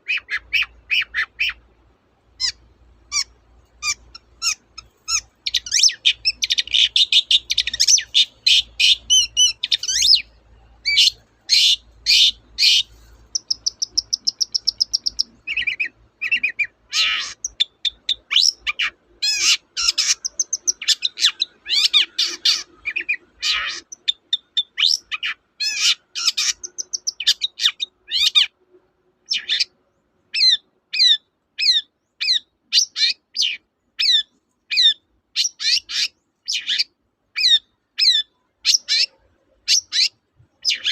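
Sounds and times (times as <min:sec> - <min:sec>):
bird singing chirps and whistles: 0:03.8 - 0:16.7, 0:17.4 - 0:23.2, 0:24.0 - 0:28.5.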